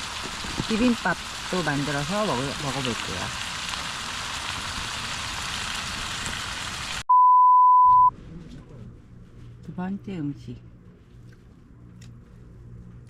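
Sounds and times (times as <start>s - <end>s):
test-tone beep: 7.1s - 8.1s.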